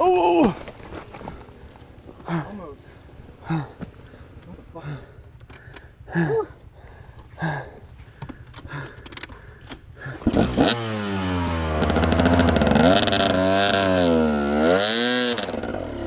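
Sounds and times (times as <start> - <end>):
dirt bike engine revving: 9.4 - 16.0.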